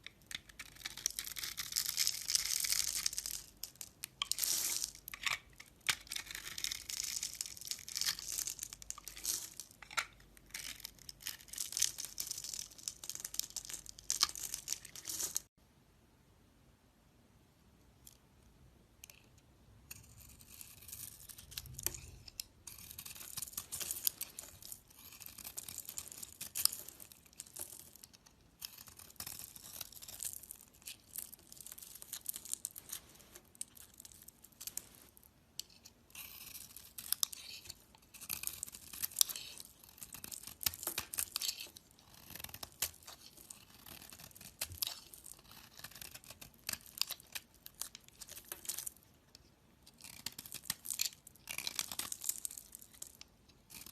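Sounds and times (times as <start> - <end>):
knife scraping soap: 0.0 - 3.4, 4.0 - 15.2, 19.0 - 33.0, 35.6 - 53.9.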